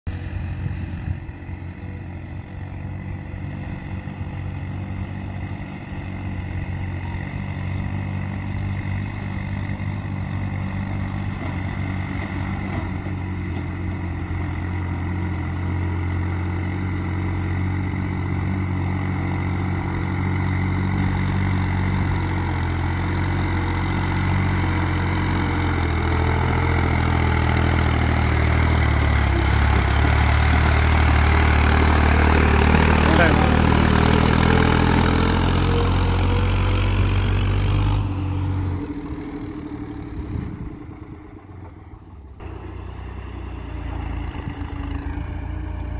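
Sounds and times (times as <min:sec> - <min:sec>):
tractor diesel engine under load: 0:00.1 - 0:45.9.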